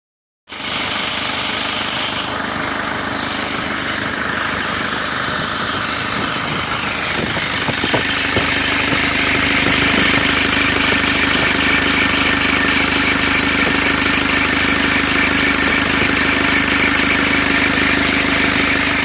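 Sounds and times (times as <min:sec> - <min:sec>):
diesel engine running: 0:00.5 - 0:19.0
light engine knocks: 0:03.9 - 0:19.0.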